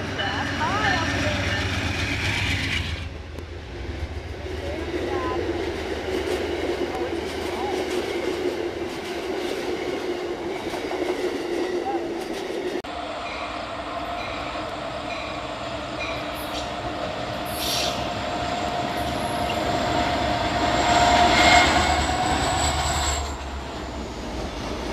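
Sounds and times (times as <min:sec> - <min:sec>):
train rolling on rails: 0:00.0 - 0:24.9
train wheels squealing: 0:13.2 - 0:16.8, 0:17.4 - 0:24.9.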